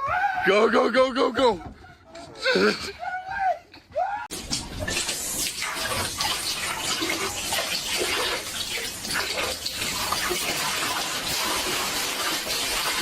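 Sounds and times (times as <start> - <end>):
water splashing and sloshing: 4.3 - 13.0.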